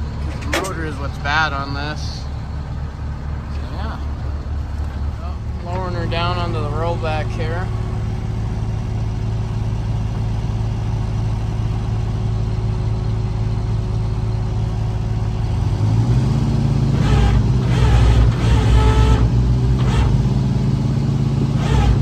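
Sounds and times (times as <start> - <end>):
diesel engine running: 0.0 - 22.0
high mechanical whine: 3.5 - 12.4, 16.8 - 22.0.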